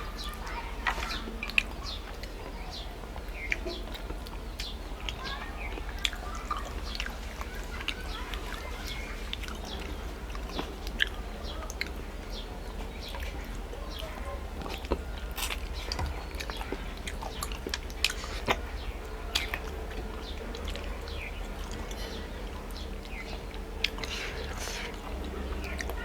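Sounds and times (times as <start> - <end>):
person chewing with lip smacks: 14.6 - 26.0.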